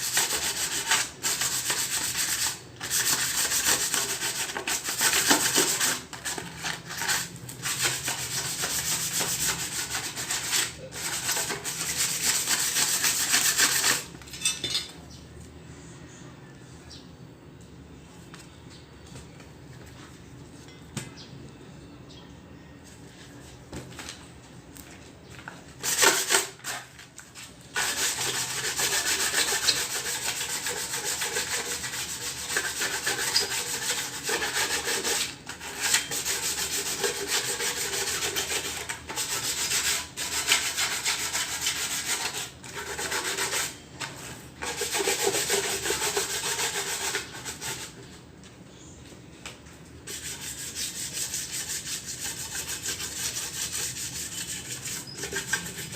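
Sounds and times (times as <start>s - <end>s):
sandpaper rasping on metal: 0.0s - 14.1s, 25.8s - 26.9s, 27.7s - 43.8s, 44.6s - 48.0s, 50.0s - 55.9s.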